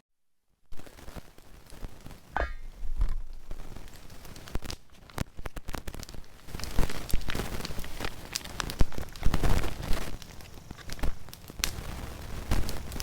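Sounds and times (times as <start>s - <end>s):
campfire crackling: 0.7s - 13.0s
sharp fire pops: 0.7s - 13.0s
rustling: 0.8s - 13.0s.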